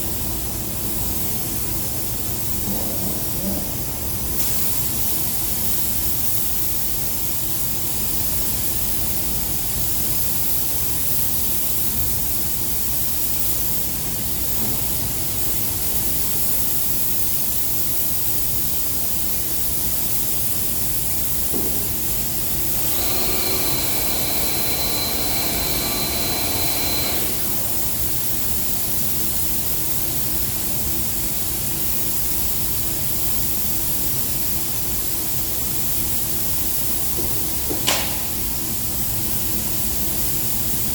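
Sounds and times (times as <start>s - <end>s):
spray gun hissing: 22.2s - 28.5s.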